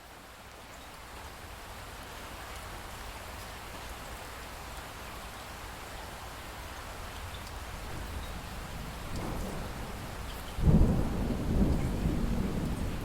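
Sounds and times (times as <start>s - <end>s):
light rain falling: 0.0s - 13.0s
water drips: 6.7s - 8.4s.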